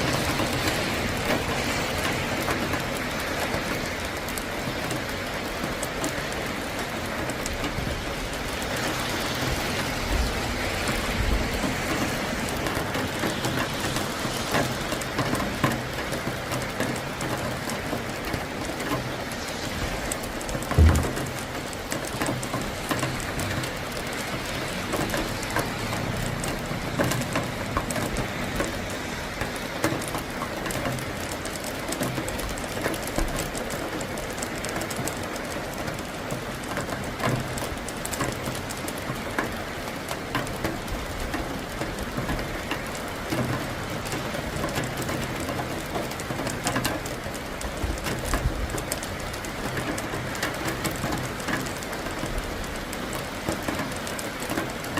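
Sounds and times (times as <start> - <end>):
heavy rain: 0.0 - 54.9
raindrops ticking: 0.0 - 54.9
low thunder rumble: 20.7 - 21.6.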